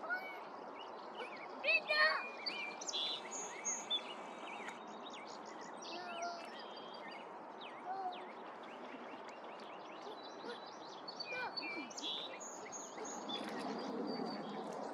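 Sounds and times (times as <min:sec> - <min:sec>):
wild birds singing and chirping: 0:00.0 - 0:14.9.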